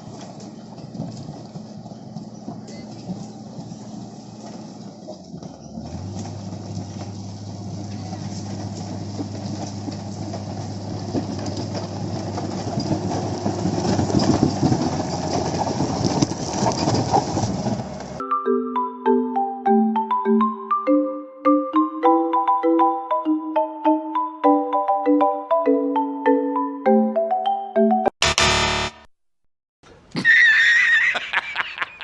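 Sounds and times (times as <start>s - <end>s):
diesel engine hum: 0.0s - 18.2s
machine rattling and clattering: 0.0s - 18.2s.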